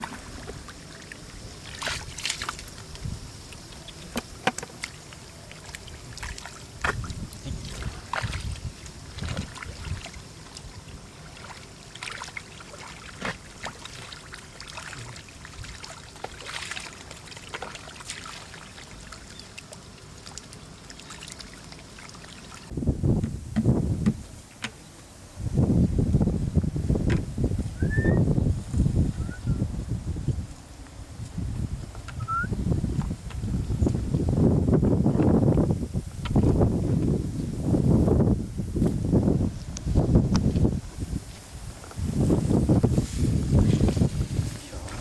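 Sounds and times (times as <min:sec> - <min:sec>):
muddy water sloshing and splashing: 0:00.0 - 0:24.4, 0:40.0 - 0:45.0
clicks and low thuds: 0:22.8 - 0:24.8.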